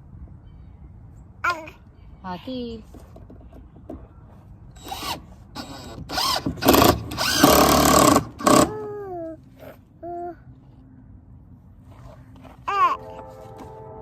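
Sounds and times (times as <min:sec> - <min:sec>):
cordless drill running: 0:04.8 - 0:08.7.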